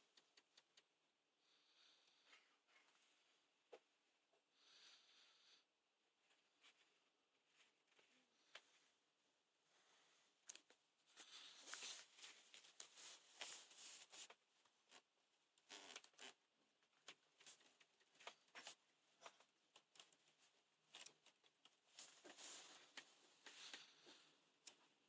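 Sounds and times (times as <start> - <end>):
faint rustling and light clicks: 0.0 - 1.0, 6.2 - 9.0, 9.7 - 25.0.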